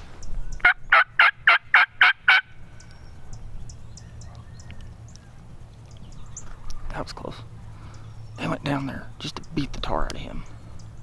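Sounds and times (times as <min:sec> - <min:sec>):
wild turkey calling loudly: 0:00.6 - 0:03.4.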